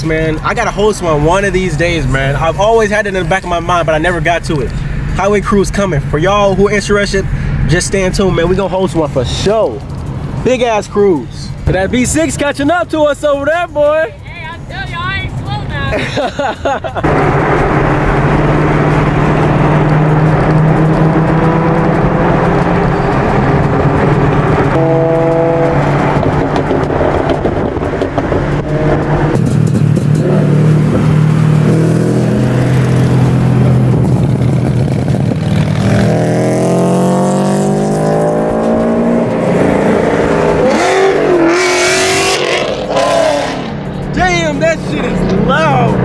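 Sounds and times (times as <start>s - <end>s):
car engines droning: 0.0s - 46.0s
car engine revving up: 17.0s - 46.0s.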